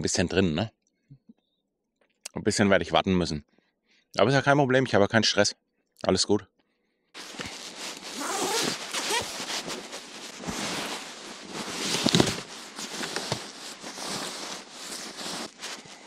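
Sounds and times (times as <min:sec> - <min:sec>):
tent fabric rustling: 0:07.2 - 0:16.0.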